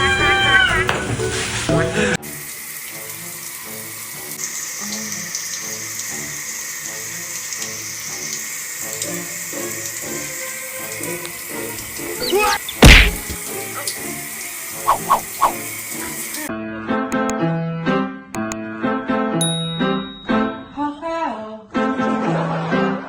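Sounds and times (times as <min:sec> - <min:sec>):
tap water running into sink: 0:00.8 - 0:16.5.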